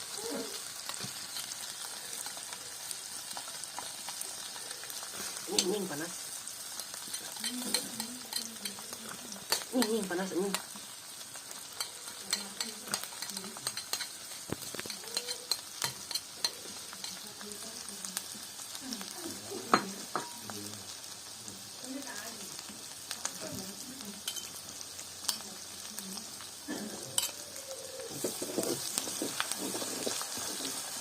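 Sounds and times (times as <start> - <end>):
food sizzling in hot oil: 0.0 - 31.0
utensil scraping cookware: 0.8 - 1.6, 7.0 - 10.8, 11.8 - 17.2, 27.2 - 27.4, 28.0 - 31.0.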